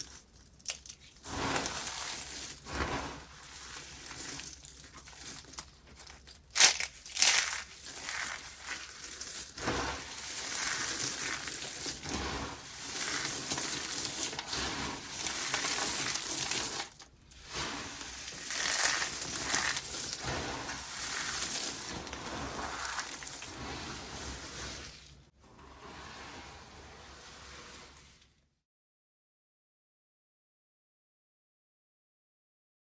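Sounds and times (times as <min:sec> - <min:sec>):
dry soap crunching by hand: 0:00.0 - 0:23.6.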